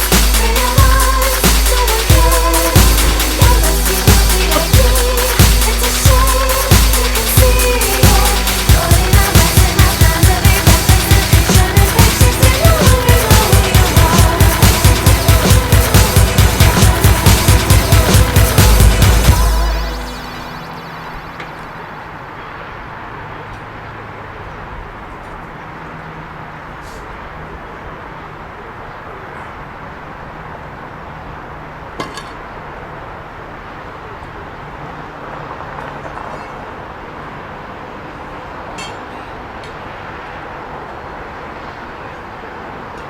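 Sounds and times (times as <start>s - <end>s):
machine engine running: 0.0s - 21.3s
sharp metallic clink: 38.8s - 39.3s.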